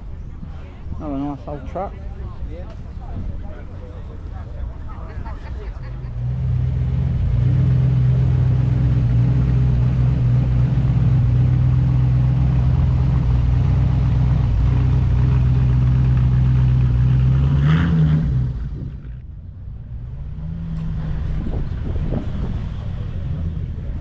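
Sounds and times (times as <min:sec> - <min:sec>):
vehicle engine idling: 0:03.8 - 0:17.6.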